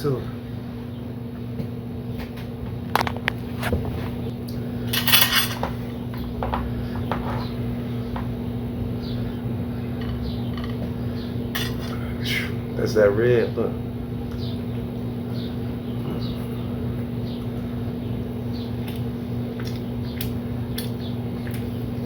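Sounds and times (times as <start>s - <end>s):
steady low hum: 0.0s - 22.0s
utensils clicking on a plate: 10.0s - 10.9s, 11.6s - 12.0s.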